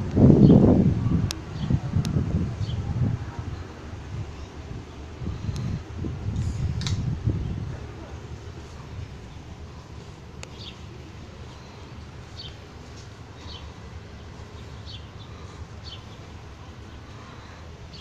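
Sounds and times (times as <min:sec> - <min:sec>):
sharp click: 0:06.3 - 0:07.0.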